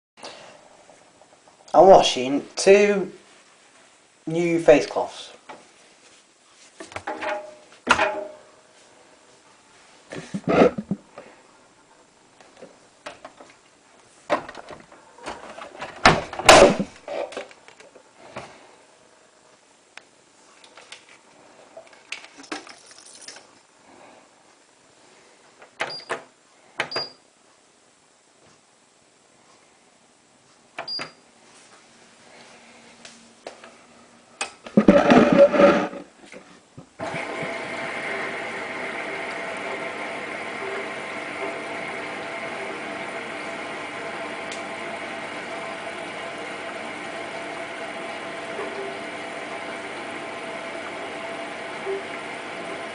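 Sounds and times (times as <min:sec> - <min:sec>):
washing machine humming: 0:37.0 - 0:52.9.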